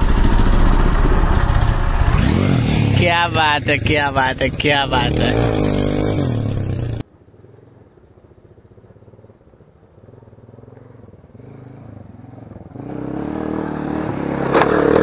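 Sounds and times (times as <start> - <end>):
motorcycle engine revving hard: 0.0 - 7.0, 11.3 - 15.0
distant motorcycle engine: 0.0 - 15.0.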